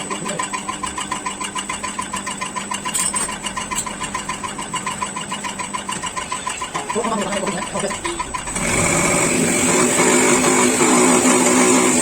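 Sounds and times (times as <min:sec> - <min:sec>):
fuel pump test bench humming: 0:00.0 - 0:12.0
even mechanical ticking: 0:00.3 - 0:09.2.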